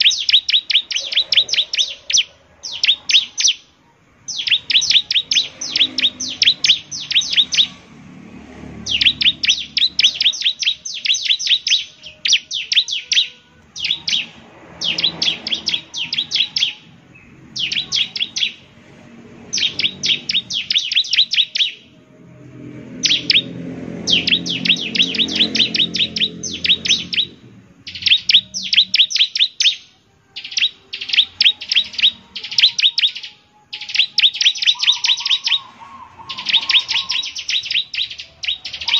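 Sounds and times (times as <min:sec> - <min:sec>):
bird singing rapid sharp notes: 0:00.0 - 0:38.9.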